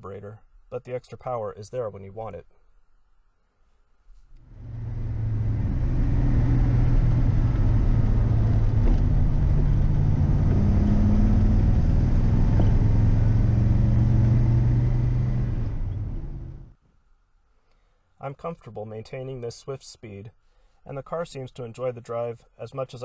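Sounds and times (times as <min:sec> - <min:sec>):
car engine droning: 0:04.4 - 0:16.7
road and wind noise: 0:04.4 - 0:16.7.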